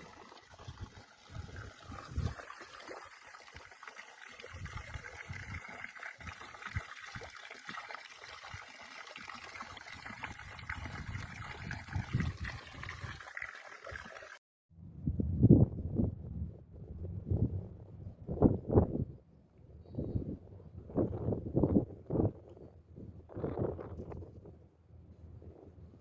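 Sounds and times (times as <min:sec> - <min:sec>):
stream trickling and gurgling: 0:00.0 - 0:14.4, 0:23.3 - 0:24.5
wind rumble on microphone: 0:00.6 - 0:02.4, 0:04.5 - 0:06.8, 0:10.2 - 0:13.2, 0:14.8 - 0:26.0.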